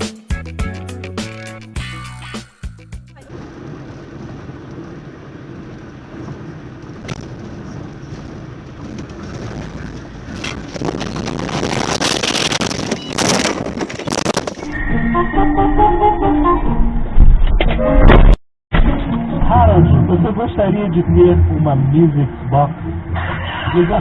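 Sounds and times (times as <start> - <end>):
moving car road and engine noise: 3.1 - 14.8, 18.8 - 24.0.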